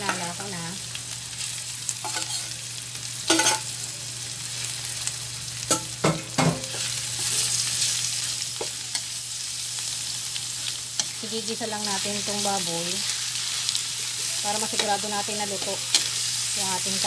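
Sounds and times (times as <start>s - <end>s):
meat sizzling in a wok: 0.0s - 17.0s
metal spatula scraping: 2.0s - 2.5s.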